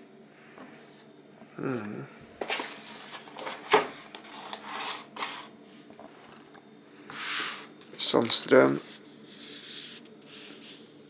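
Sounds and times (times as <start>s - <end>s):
packaging rustling and rubbing: 2.4s - 5.5s.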